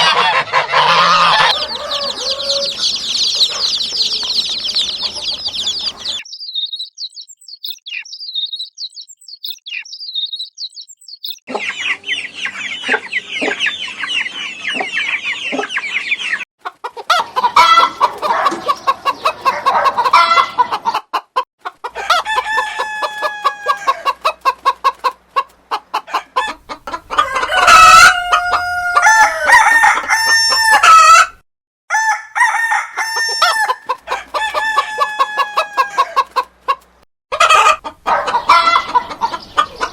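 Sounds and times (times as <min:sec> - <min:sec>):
chickens clucking: 0:00.0 - 0:06.2, 0:11.5 - 0:31.4, 0:33.0 - 0:39.9
rooster crowing: 0:00.0 - 0:06.2, 0:22.0 - 0:24.1, 0:26.4 - 0:36.3.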